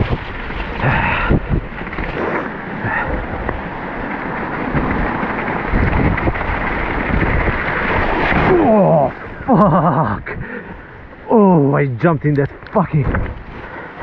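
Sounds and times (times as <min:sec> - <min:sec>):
wind on microphone: 0:00.0 - 0:11.3, 0:12.3 - 0:13.8
bike rolling over wet trail: 0:00.0 - 0:14.0
man exclaiming: 0:08.4 - 0:09.2.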